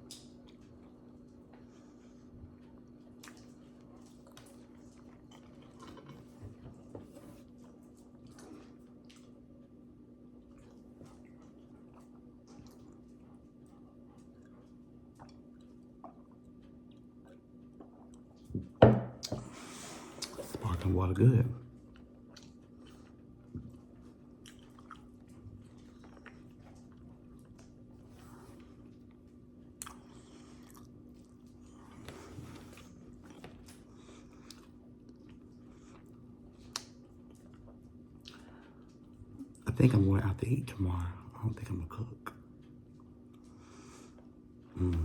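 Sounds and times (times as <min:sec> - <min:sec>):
person chewing: 0:02.5 - 0:09.8, 0:10.4 - 0:18.5, 0:21.8 - 0:39.6.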